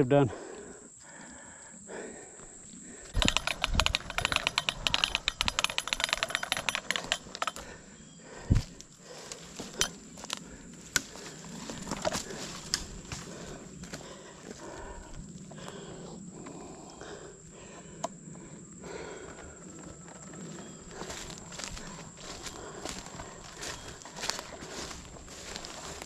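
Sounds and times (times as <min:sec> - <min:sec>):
dry twigs crackling and snapping: 0:08.6 - 0:14.1, 0:20.9 - 0:26.0.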